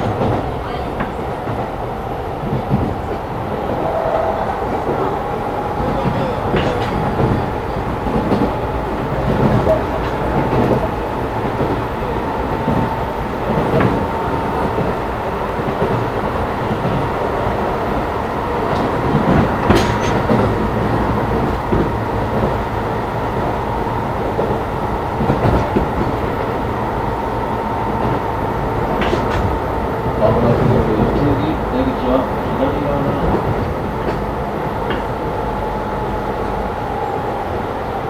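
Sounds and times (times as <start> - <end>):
electric train running: 0.0 - 38.0
wheel clacks over rail joints: 5.8 - 12.0, 18.2 - 22.7, 24.3 - 35.3.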